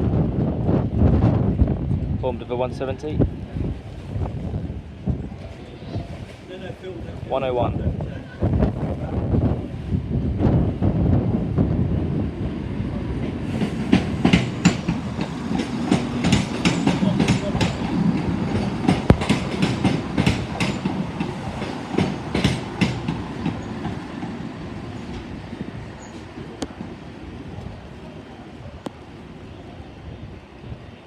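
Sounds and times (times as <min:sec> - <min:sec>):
train rumbling: 0:00.0 - 0:31.0
train wheels clacking over rail joints: 0:13.2 - 0:24.4.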